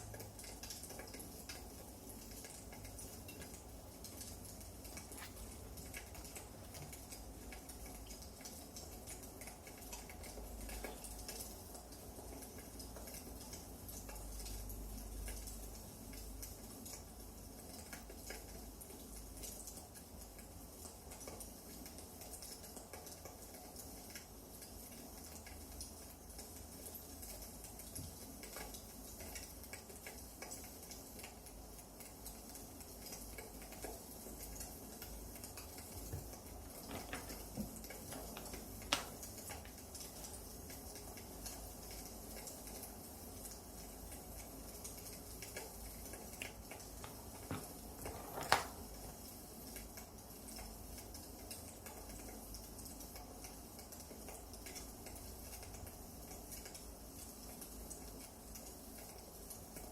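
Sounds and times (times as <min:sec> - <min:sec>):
firewood crackling: 0:35.4 - 0:40.4, 0:46.4 - 0:49.3.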